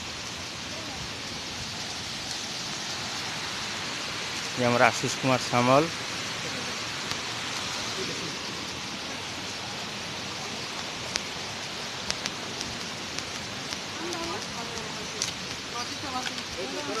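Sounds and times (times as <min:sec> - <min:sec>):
waterfall rushing: 0:00.0 - 0:17.0
faint clicks: 0:10.8 - 0:16.6.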